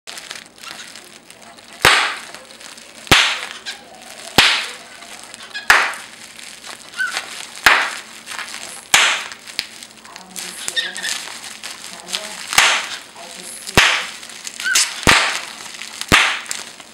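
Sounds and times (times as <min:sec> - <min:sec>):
packing bubbles popping: 0:00.1 - 0:16.9
cockatiel chirp: 0:03.5 - 0:05.9, 0:06.9 - 0:07.2, 0:14.6 - 0:15.0.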